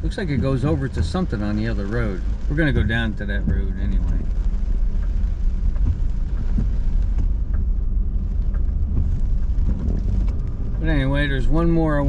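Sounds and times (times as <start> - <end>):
engine and tyre rumble: 0.0 - 12.0
hiss of rain and road spray: 0.0 - 12.0.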